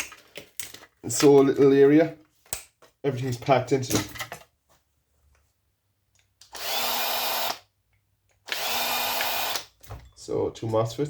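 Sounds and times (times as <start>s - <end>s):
small power tool whining: 6.5s - 7.6s, 8.4s - 9.7s.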